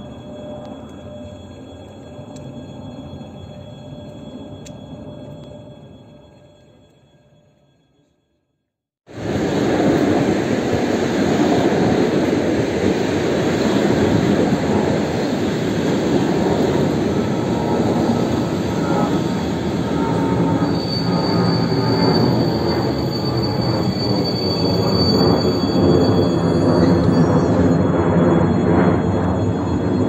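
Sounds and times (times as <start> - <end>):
high wheel squeal: 0.0 - 6.9, 11.1 - 30.0
train running past: 9.1 - 30.0.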